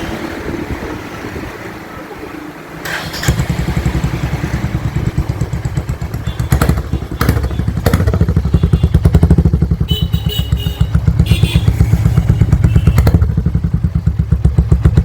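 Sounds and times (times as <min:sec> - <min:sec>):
motorcycle exhaust pulsing: 0:03.3 - 0:15.0.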